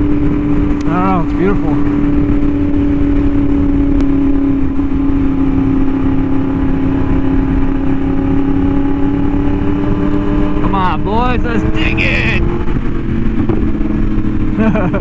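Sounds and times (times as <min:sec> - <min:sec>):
motorcycle engine cruising: 0:00.0 - 0:15.0.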